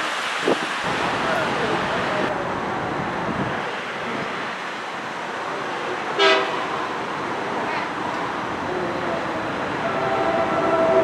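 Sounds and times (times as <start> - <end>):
rushing rail noise: 0.0 - 11.0
train horn toot: 6.2 - 6.6, 9.8 - 11.0.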